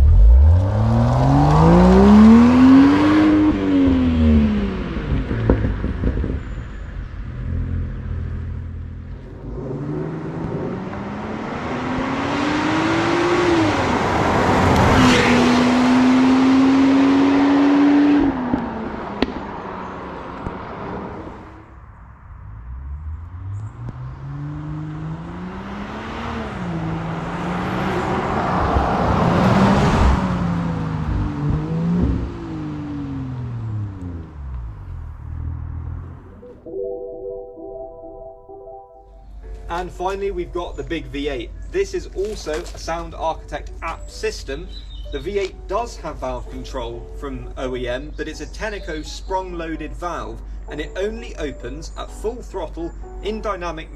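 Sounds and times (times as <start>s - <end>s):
car engine revving: 0.0s - 36.4s.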